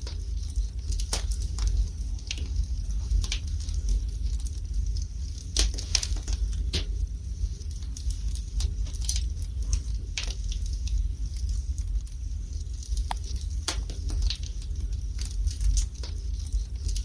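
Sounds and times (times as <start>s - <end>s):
low rumble of fire: 0.0s - 17.0s
wood fire crackling and popping: 0.0s - 17.0s.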